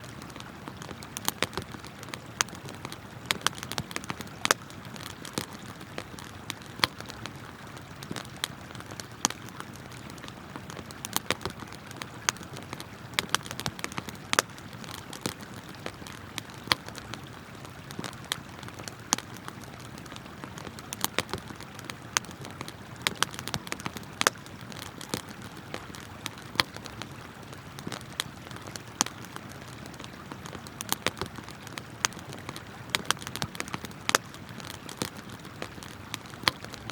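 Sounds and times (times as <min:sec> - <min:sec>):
campfire crackling: 0:00.0 - 0:36.9.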